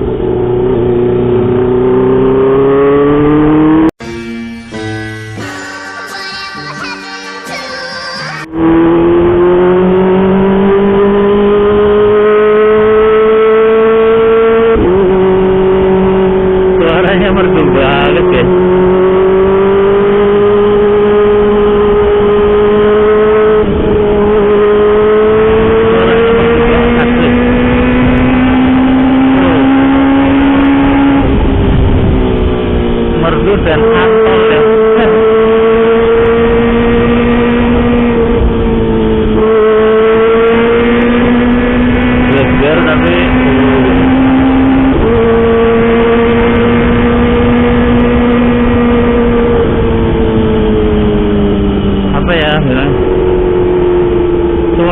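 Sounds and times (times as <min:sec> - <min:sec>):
motorcycle engine revving: 0:00.0 - 0:05.6, 0:08.2 - 0:54.9.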